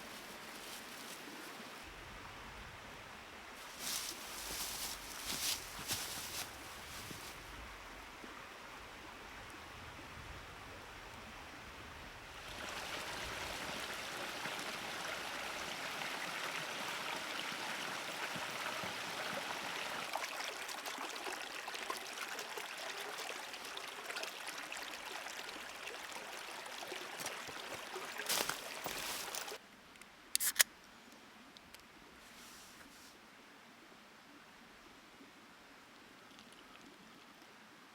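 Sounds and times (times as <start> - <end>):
creek trickling: 0.0 - 1.9, 3.6 - 8.0, 12.4 - 29.6.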